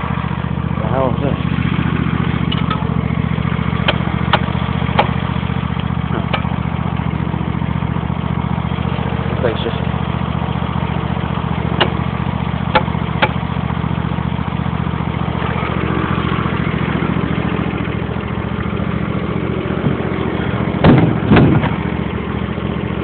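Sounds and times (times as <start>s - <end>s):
lawn mower engine running: 0.0s - 23.0s
loud rough noises: 15.1s - 22.2s.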